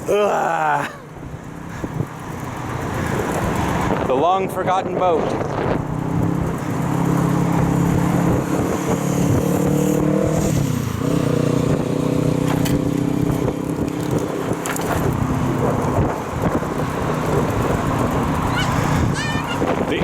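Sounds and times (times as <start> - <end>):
vehicle engine humming: 0.0 - 4.2, 10.8 - 20.0.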